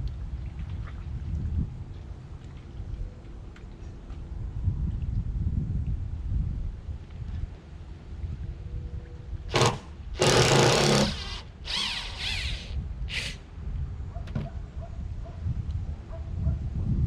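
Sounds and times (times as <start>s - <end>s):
power tool whine: 9.5s - 13.4s.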